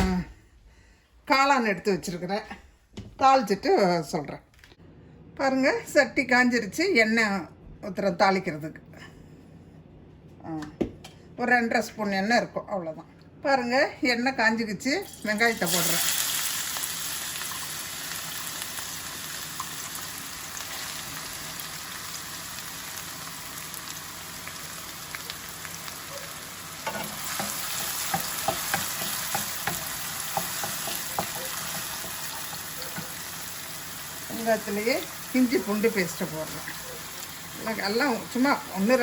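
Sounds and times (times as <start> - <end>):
onion sizzling in oil: 15.0 - 39.0.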